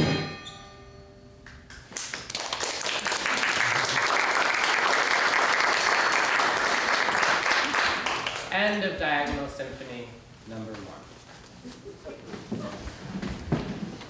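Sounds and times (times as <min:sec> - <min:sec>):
audience applause: 0:01.9 - 0:08.5.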